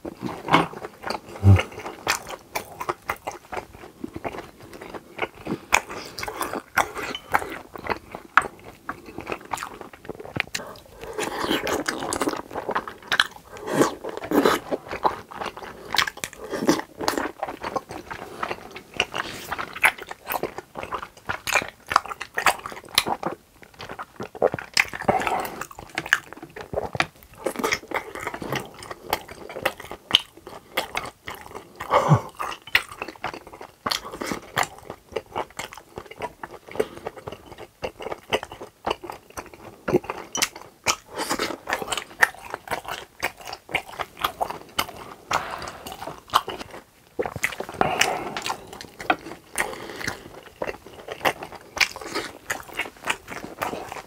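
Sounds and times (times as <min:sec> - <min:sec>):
close chewing with wet mouth smacks: 0:00.0 - 0:54.0.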